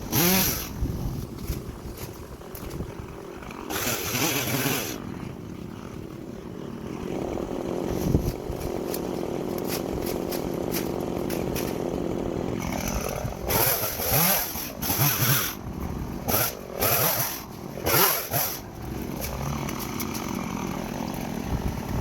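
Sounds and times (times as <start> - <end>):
chainsaw running: 0.0 - 22.0.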